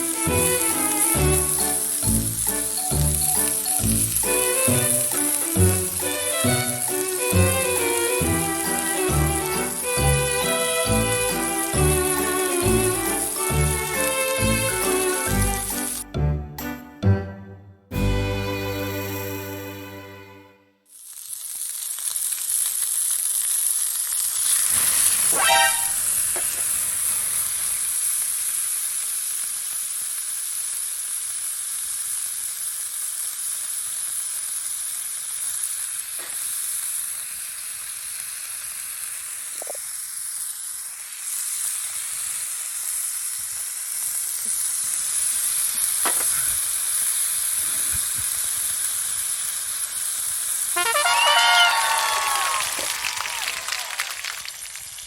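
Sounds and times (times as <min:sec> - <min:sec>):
food sizzling in a frying pan: 0:00.0 - 0:16.1, 0:20.8 - 0:53.9.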